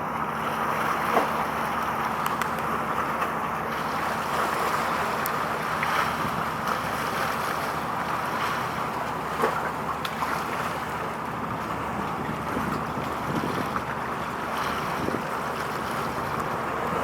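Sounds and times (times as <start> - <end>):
sea water rushing: 0.0 - 17.0
wind buffeting microphone: 11.2 - 17.0.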